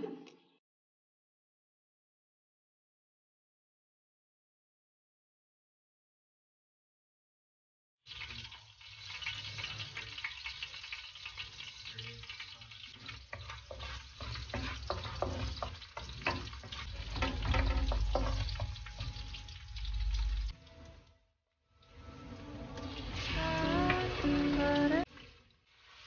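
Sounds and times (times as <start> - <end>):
shallots sizzling in hot oil: 8.1 - 20.8, 22.0 - 26.0
wooden spatula stirring in wok: 9.2 - 20.5, 22.7 - 26.0
low rumble: 17.5 - 20.5.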